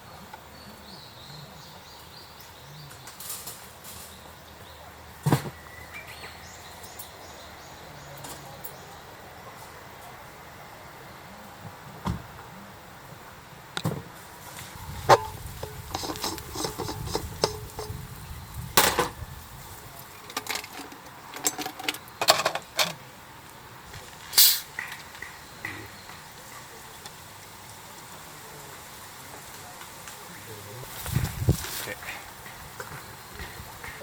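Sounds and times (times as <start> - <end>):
camping gear knocks and clicks: 15.0 - 18.0, 18.8 - 19.2, 20.2 - 23.0.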